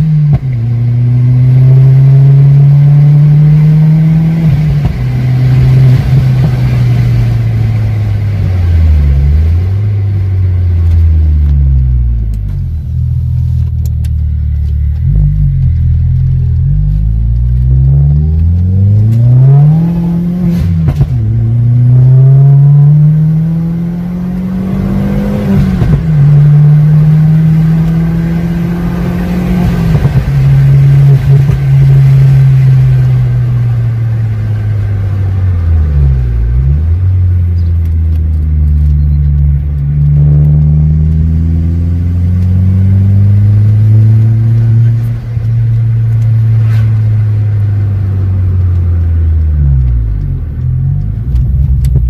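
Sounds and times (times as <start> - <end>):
car engine accelerating: 0.0 - 52.0.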